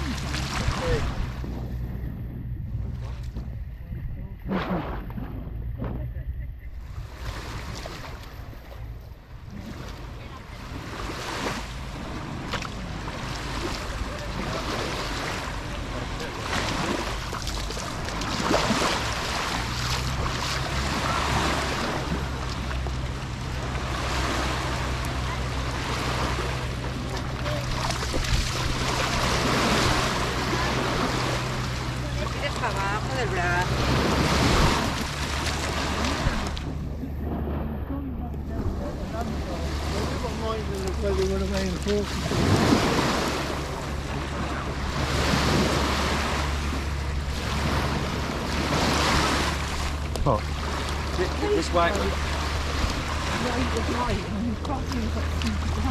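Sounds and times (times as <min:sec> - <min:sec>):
sea waves washing on beach: 0:00.0 - 0:03.8, 0:06.8 - 0:55.9
steady low hum: 0:00.0 - 0:55.9
wind on microphone: 0:00.0 - 0:55.9.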